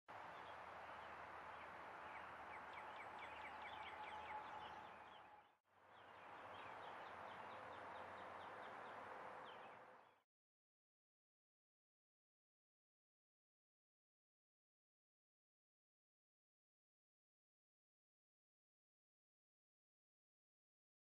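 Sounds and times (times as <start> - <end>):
outdoor background noise: 0.1 - 10.2.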